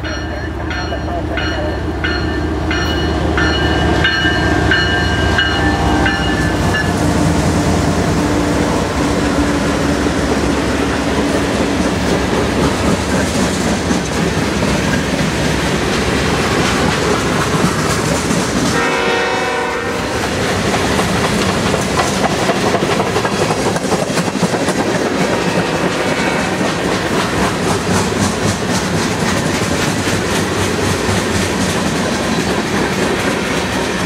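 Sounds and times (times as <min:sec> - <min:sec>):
wheels clacking over rail joints: 0:00.0 - 0:19.1, 0:20.2 - 0:34.0
diesel locomotive engines running: 0:00.0 - 0:34.0
train horn blasts: 0:05.1 - 0:07.0, 0:18.7 - 0:20.4, 0:25.5 - 0:26.8.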